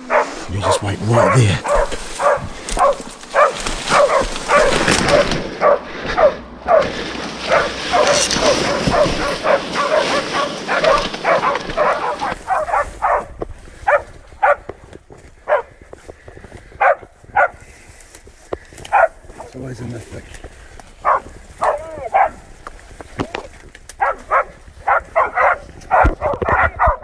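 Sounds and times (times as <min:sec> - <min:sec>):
dogs barking: 0:00.0 - 0:15.9, 0:16.7 - 0:17.7, 0:18.7 - 0:19.6, 0:20.9 - 0:22.6, 0:24.0 - 0:27.0
steady rushing noise: 0:00.0 - 0:18.5.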